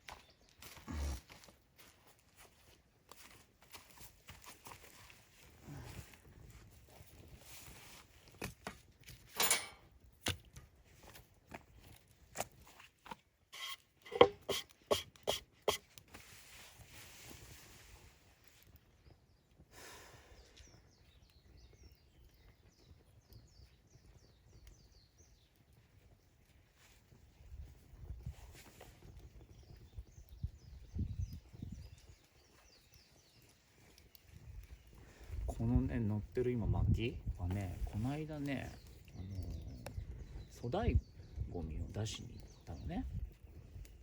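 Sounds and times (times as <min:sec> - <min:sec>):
hard objects knocking and clattering: 0:14.1 - 0:15.0.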